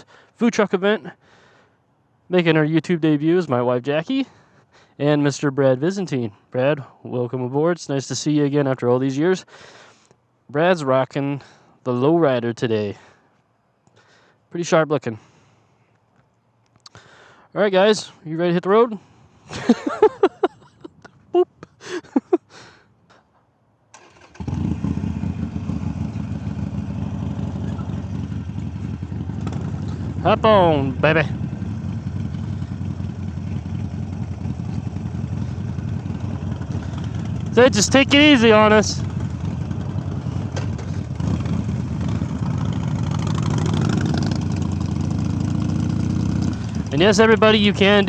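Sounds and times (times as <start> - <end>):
motorcycle engine starting and idling: 23.9 - 48.0.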